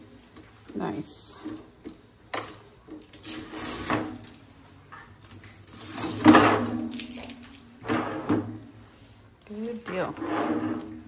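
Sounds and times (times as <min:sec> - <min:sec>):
scraping and rubbing: 0:09.5 - 0:11.0.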